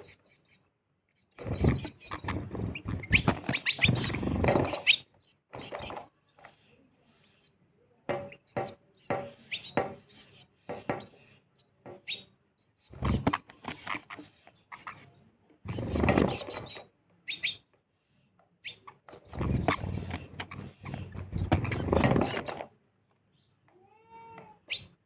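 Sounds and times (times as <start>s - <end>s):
sparrows chirping: 0.0s - 25.0s.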